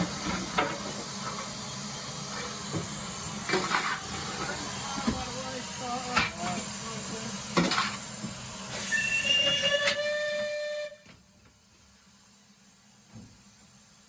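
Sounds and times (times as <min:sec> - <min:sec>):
steam locomotive rushing hiss: 0:00.0 - 0:14.0
steam whistle: 0:08.7 - 0:11.2.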